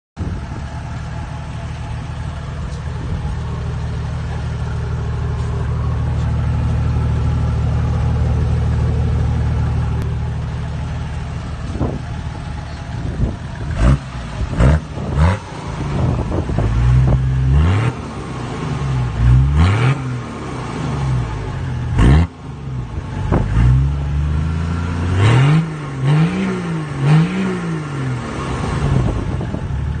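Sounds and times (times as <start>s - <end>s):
diesel engine idling and revving: 0.2s - 30.0s.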